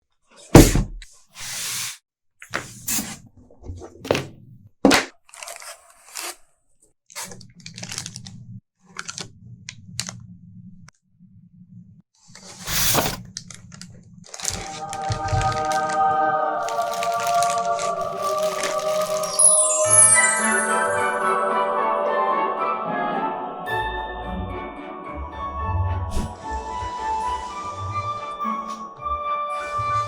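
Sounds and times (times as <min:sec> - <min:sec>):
packing tearing and crinkling: 0:05.2 - 0:06.5, 0:07.1 - 0:09.4, 0:12.4 - 0:19.7.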